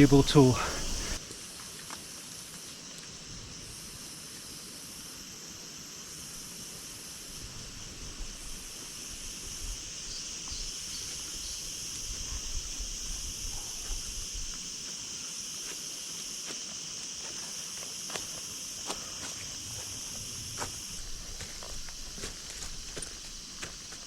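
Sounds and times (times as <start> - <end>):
higher insect buzzing: 0.0 - 1.2
insect chorus buzzing: 0.0 - 24.0.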